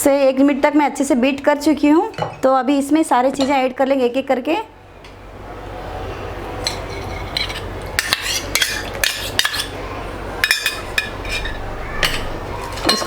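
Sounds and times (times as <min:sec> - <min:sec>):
utensil clinking against bowl: 0:06.6 - 0:09.8, 0:10.4 - 0:13.0.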